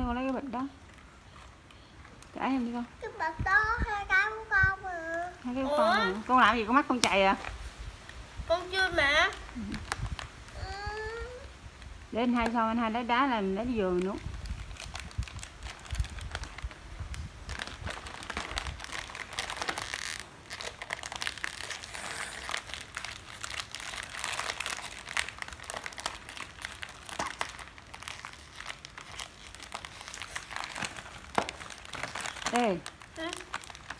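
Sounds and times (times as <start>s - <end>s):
plastic bag crinkling: 13.8s - 33.9s.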